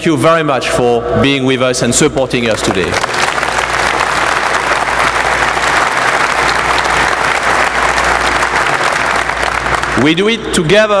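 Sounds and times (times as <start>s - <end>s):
crowd applauding: 2.4s - 10.3s.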